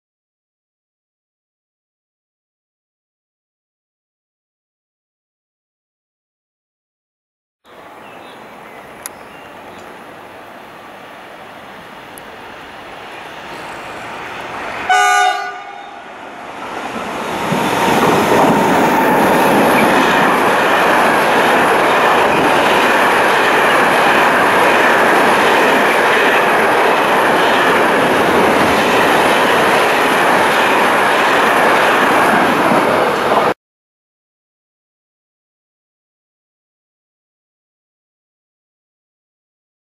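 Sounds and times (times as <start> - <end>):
freight train wheel-on-rail noise: 7.7 - 33.6
train horn blast: 14.8 - 16.1.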